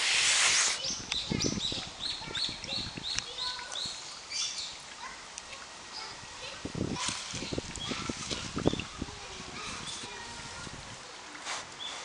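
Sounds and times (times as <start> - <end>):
songbird chirping: 0.5 - 10.3
bumps and rustles near microphone: 6.0 - 12.0.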